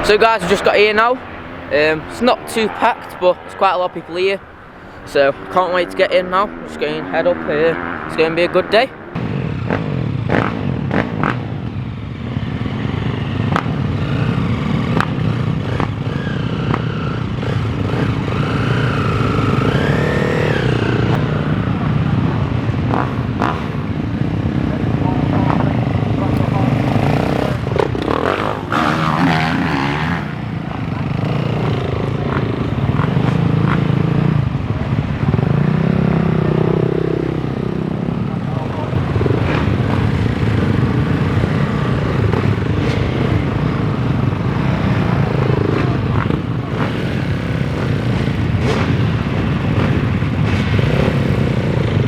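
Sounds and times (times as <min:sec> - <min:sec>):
higher engine note rising: 0:00.0 - 0:10.0
dirt bike engines running: 0:00.0 - 0:52.0.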